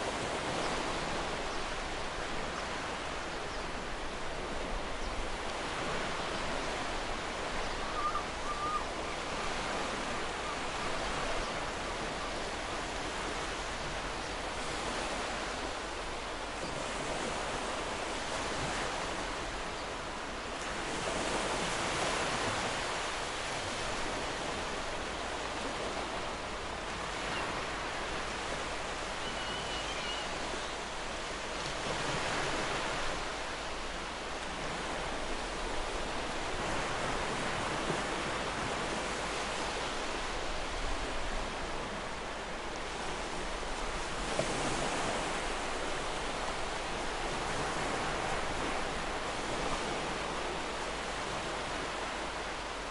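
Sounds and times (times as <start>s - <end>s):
waves breaking on a beach: 0.0s - 52.9s.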